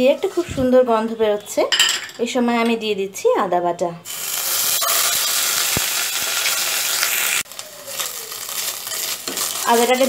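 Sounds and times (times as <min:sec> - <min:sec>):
paste sizzling and spattering in oil: 0:04.1 - 0:10.0
spatula stirring in a pan: 0:07.0 - 0:10.0.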